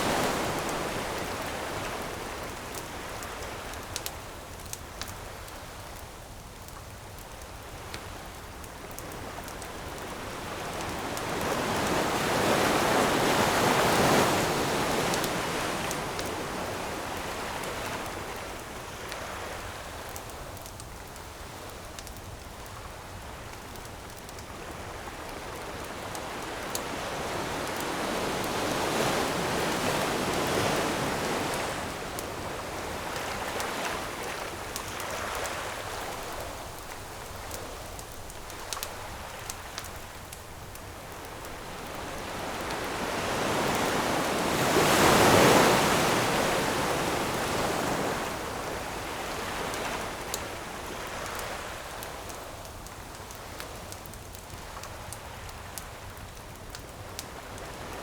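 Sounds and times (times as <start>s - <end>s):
ocean waves breaking on shore: 0.0s - 4.0s, 7.7s - 20.1s, 24.5s - 53.9s
campfire crackling pops: 33.1s - 42.9s.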